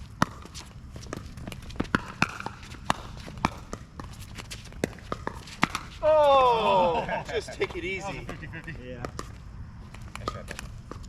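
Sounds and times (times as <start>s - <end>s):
footsteps on court: 0.0s - 6.6s
paddles hitting plastic ball: 0.2s - 6.1s.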